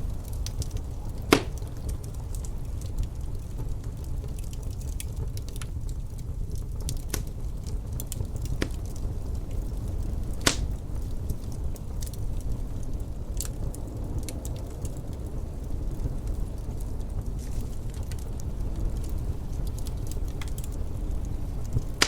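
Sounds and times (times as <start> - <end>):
low rumble of wind: 0.0 - 22.0
wood fire crackling: 0.0 - 22.0
sharp pops: 10.4 - 10.7.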